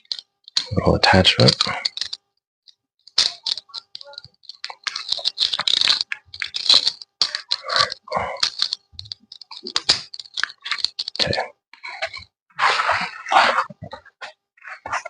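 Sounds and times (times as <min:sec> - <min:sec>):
hand tools clicking and rattling: 0:00.0 - 0:02.2, 0:03.0 - 0:12.3.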